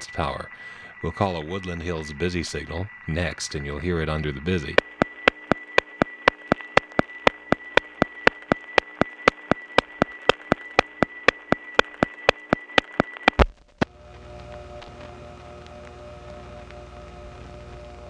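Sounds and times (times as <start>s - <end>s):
multi-tone hum: 4.6s - 18.0s
high whine: 4.7s - 13.5s
electrical hum: 4.7s - 18.0s
sharp line ticks: 4.8s - 13.4s.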